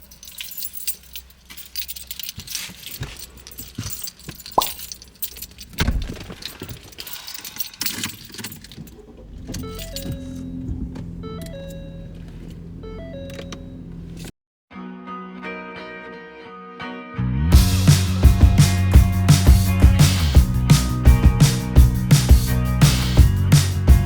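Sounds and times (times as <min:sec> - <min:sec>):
keys jangling: 0:00.0 - 0:10.4
handling clatter and knocks: 0:00.0 - 0:14.3
background music with held notes: 0:14.7 - 0:24.0.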